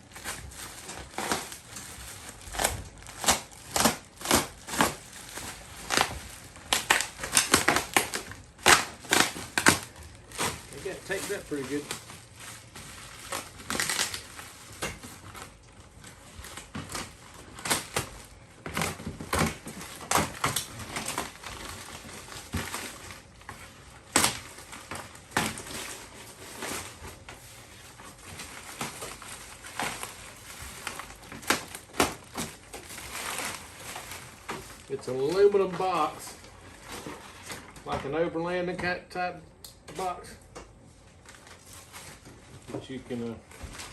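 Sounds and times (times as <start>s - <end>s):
bubble wrap popping: 0.0s - 37.0s
packing material crinkling: 0.0s - 38.4s, 40.9s - 43.9s.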